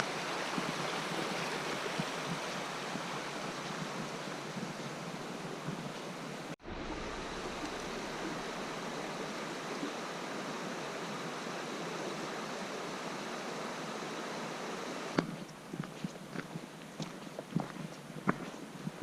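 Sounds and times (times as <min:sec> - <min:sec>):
river water rushing: 0:00.0 - 0:17.3.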